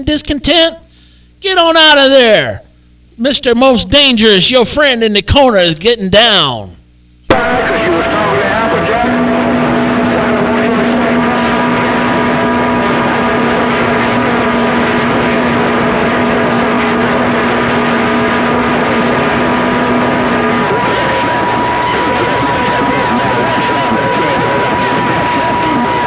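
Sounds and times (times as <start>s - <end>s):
radio static hiss: 6.7s - 26.0s.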